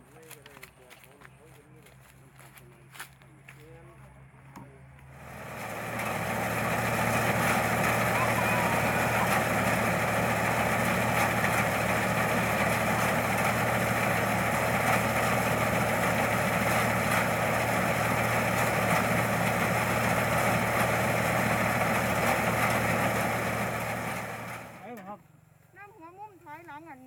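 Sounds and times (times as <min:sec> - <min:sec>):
harvester engine and machinery running: 0:00.0 - 0:25.5.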